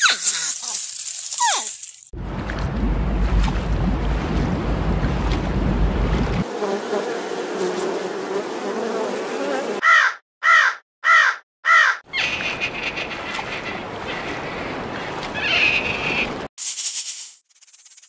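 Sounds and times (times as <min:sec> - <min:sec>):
buzzing hum: 0:02.2 - 0:09.8
bird calling: 0:09.8 - 0:16.5.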